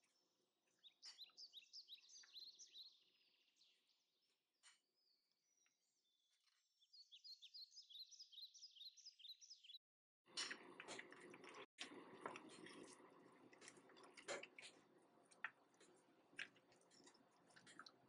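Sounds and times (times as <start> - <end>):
faint bird chirping: 0.0 - 9.8.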